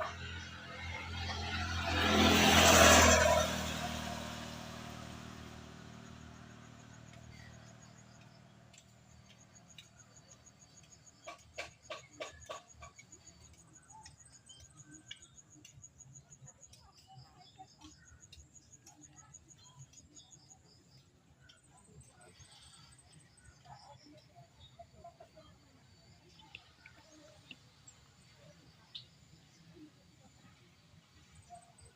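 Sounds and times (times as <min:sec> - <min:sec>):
vehicle passing: 0:00.0 - 0:10.3.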